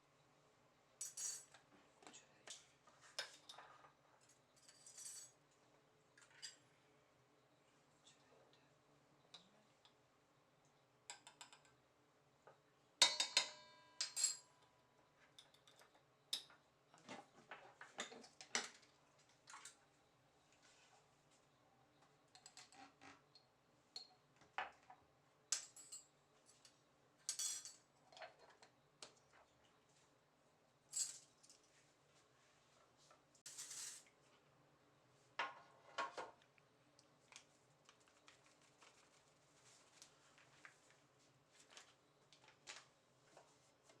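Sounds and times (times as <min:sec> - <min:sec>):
kitchen utensils and dishes clinking: 0:33.5 - 0:34.1.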